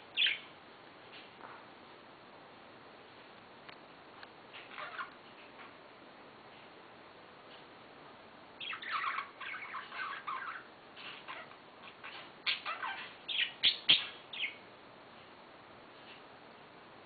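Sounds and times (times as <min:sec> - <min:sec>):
budgerigars chirping and chattering: 0:00.2 - 0:00.5, 0:04.6 - 0:05.2, 0:08.6 - 0:14.6.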